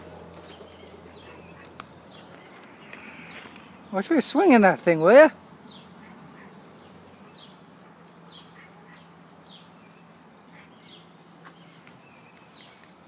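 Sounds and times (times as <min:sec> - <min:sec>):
steady low hum: 0:00.0 - 0:04.0
bird chirping: 0:00.0 - 0:13.0.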